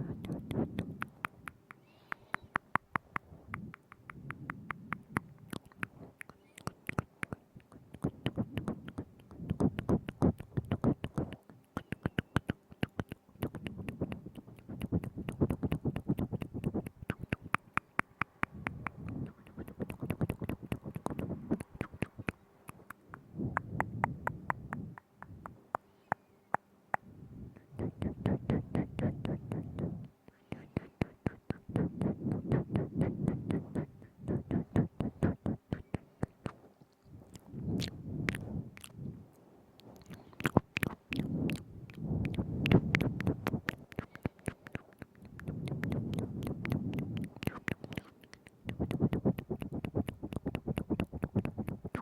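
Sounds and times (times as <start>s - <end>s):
wet mouth clicks and smacks: 0.0s - 39.0s, 39.8s - 52.0s.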